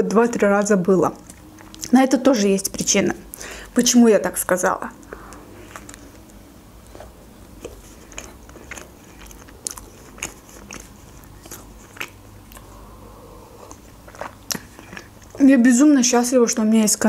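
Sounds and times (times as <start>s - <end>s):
person chewing food: 1.2s - 1.9s, 5.0s - 15.4s.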